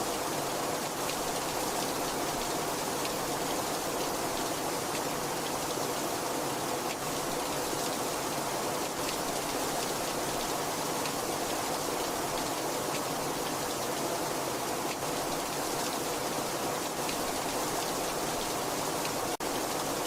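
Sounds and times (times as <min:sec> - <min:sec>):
heavy rain falling: 0:00.0 - 0:20.0.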